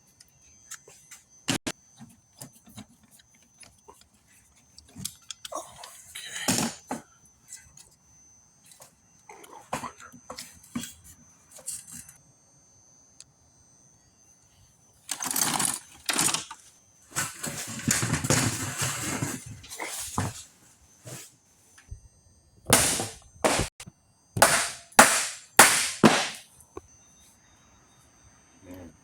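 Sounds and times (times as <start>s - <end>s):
sharp hits: 24.4s - 26.4s.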